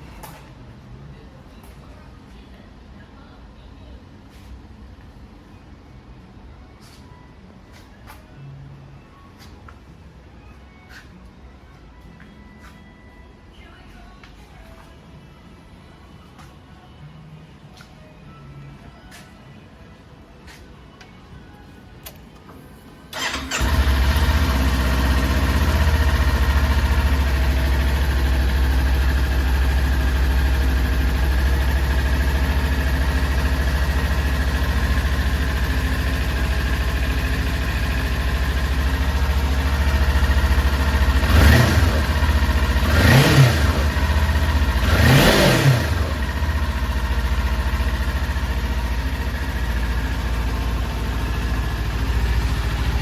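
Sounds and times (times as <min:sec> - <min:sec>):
motorcycle engine idling and revving: 0:23.1 - 0:53.0.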